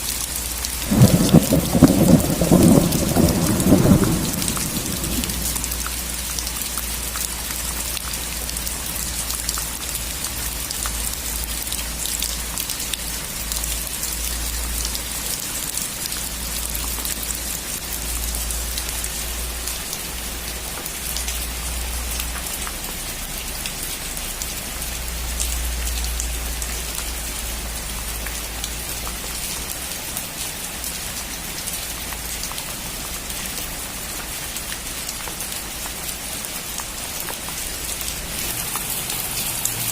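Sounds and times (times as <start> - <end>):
rain falling on a roof: 0.0 - 39.9.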